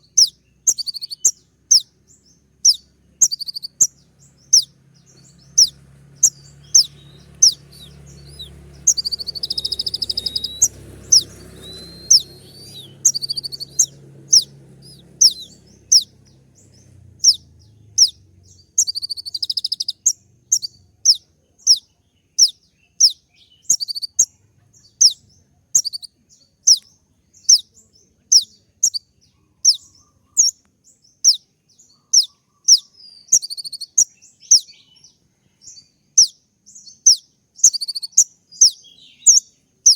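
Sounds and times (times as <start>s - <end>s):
sunbird singing sharp high notes: 0.0s - 25.2s
bird buzzy trills: 0.0s - 27.7s, 31.2s - 34.8s, 36.1s - 39.9s.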